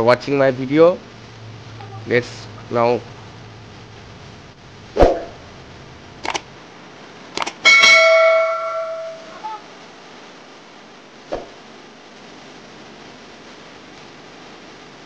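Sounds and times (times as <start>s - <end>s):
sharp clicks: 6.2s - 6.5s, 7.3s - 7.6s
bell-like metallic ring: 7.7s - 9.4s.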